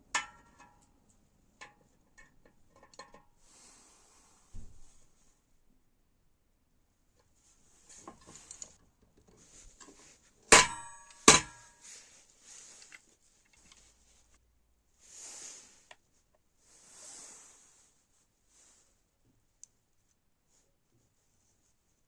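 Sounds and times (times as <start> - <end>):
sharp metallic clanks: 10.5 - 11.8.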